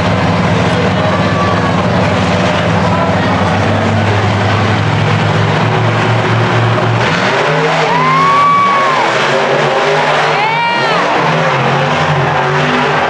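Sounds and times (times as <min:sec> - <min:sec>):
monster truck engines revving: 0:00.0 - 0:13.0
high squeal: 0:07.5 - 0:11.0.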